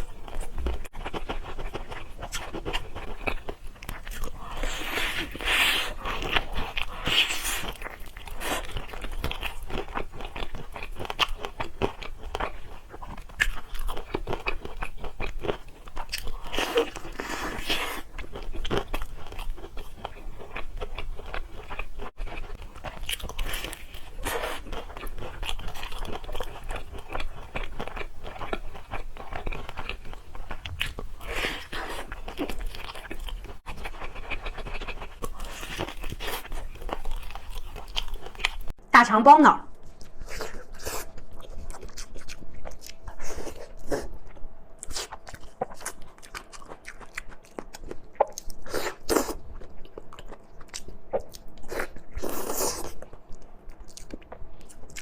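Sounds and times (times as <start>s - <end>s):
crunchy chewing: 0.0s - 38.8s, 39.8s - 55.0s.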